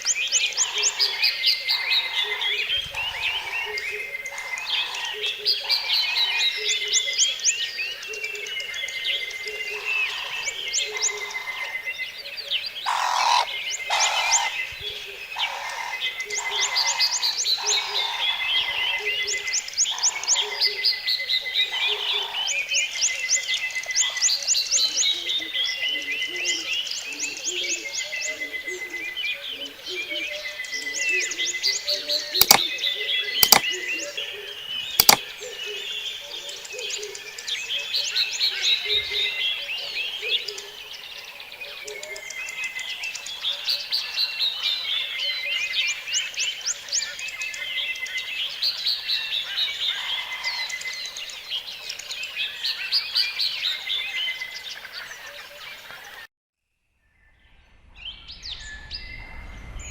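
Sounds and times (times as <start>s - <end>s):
frogs croaking: 0.0s - 24.2s, 32.4s - 56.2s
small birds chirping: 0.0s - 56.3s
sharp double clicks: 32.4s - 32.7s, 33.4s - 33.7s, 35.0s - 35.2s.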